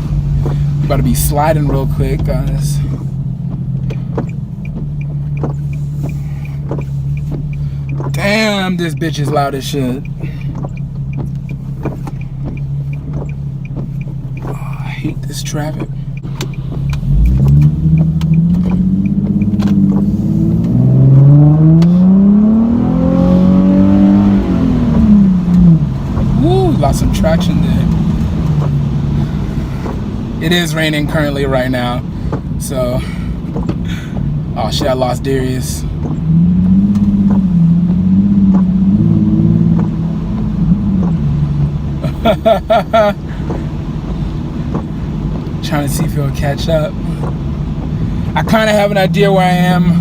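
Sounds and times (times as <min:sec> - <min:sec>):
car engine from inside cabin: 0:00.0 - 0:50.0.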